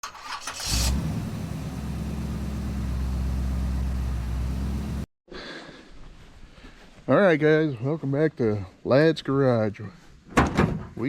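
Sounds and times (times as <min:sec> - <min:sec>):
car engine running: 0:00.5 - 0:05.1.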